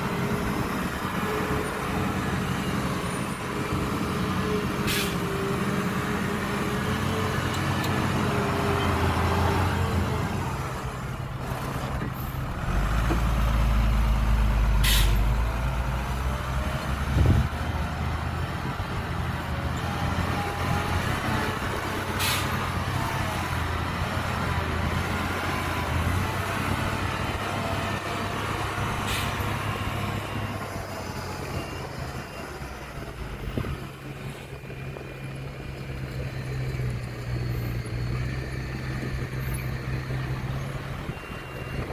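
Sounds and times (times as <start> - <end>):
heavy diesel engines running: 0.0 - 41.9
air brake hisses: 4.8 - 5.2, 14.8 - 15.2, 22.2 - 22.6, 29.0 - 29.4.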